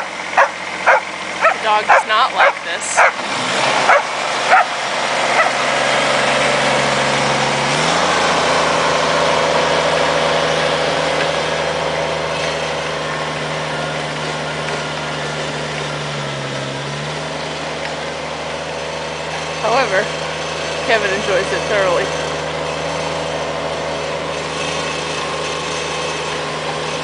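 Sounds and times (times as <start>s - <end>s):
tractor engine running: 0.0s - 27.0s
dog barking: 0.4s - 3.2s, 3.9s - 4.8s, 5.4s - 5.6s.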